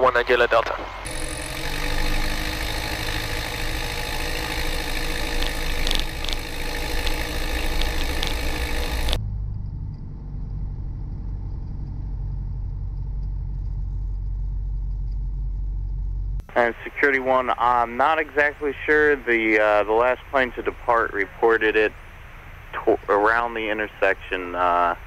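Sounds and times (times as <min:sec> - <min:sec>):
propeller plane engine droning: 0:00.0 - 0:10.6, 0:16.5 - 0:25.0.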